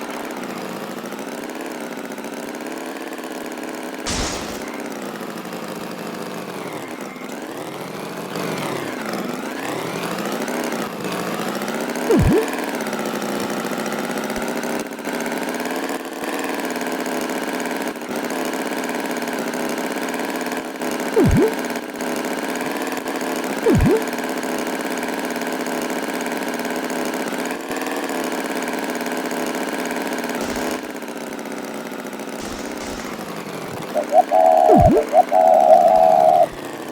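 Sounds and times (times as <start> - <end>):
swooping sounds: 4.1 - 4.8, 12.1 - 12.5, 21.2 - 21.6, 23.7 - 24.1, 32.4 - 36.6.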